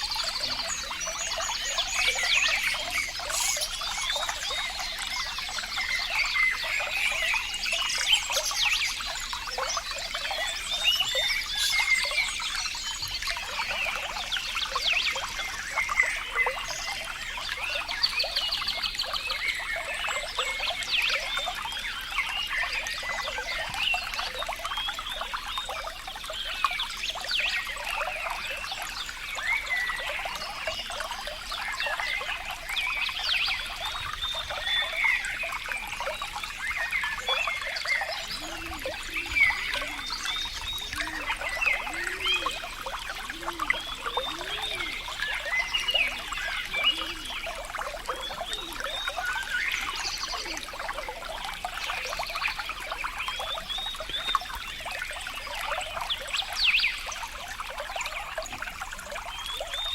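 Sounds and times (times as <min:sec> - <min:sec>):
water trickling and burbling: 0:00.0 - 0:59.9
low gurgling notes: 0:18.8 - 0:59.9.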